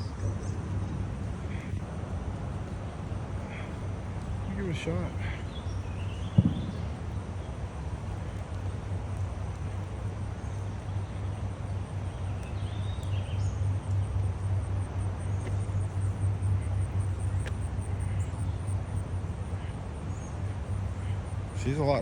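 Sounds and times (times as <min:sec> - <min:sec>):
steady low rumble: 0:00.0 - 0:22.0
faint bird chirps: 0:02.8 - 0:07.8.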